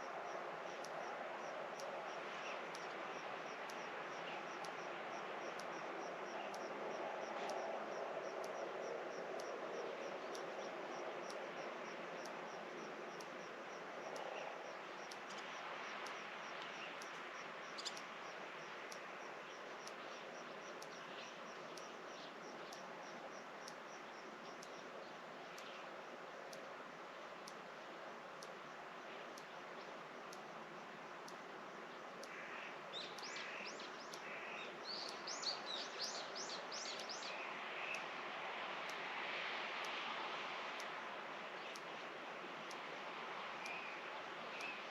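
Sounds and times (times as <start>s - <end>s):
steady hiss: 0.0s - 44.9s
songbird chirping: 13.2s - 25.9s, 31.3s - 38.2s, 43.6s - 44.9s.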